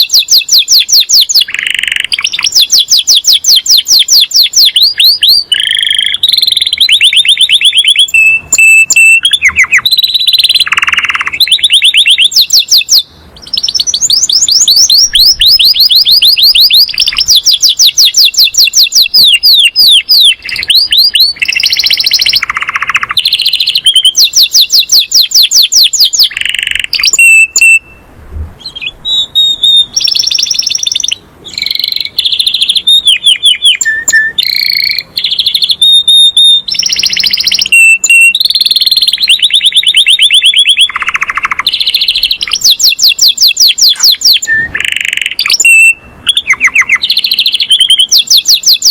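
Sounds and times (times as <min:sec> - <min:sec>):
canary singing trills: 0:00.0 - 0:48.9.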